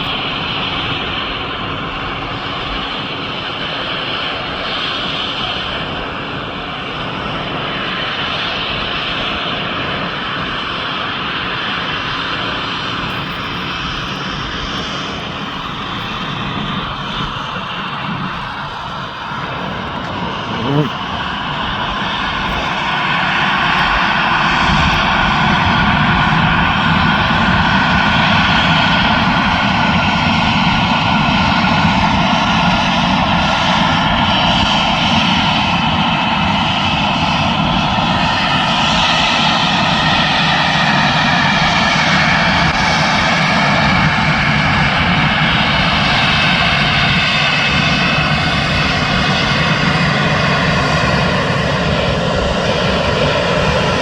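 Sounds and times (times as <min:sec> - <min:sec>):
jet engines rushing: 0:00.0 - 0:54.0.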